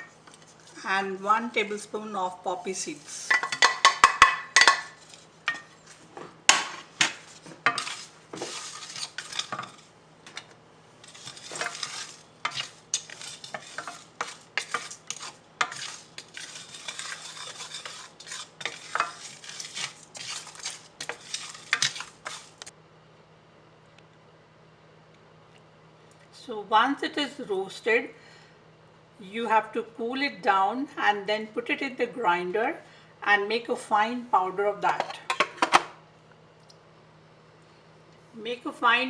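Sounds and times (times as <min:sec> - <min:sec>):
spatula scraping spices in pan: 0:04.6 - 0:06.0, 0:07.0 - 0:09.9, 0:11.0 - 0:22.7.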